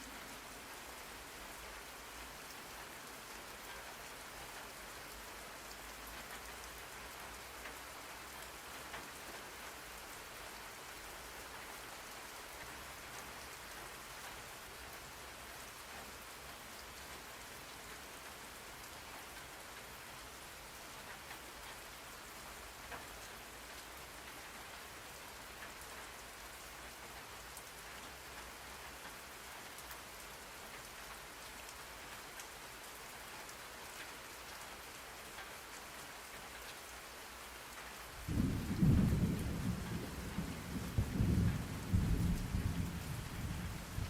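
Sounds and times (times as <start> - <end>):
rain hiss: 0.0 - 44.0
low roll of thunder: 38.2 - 44.0.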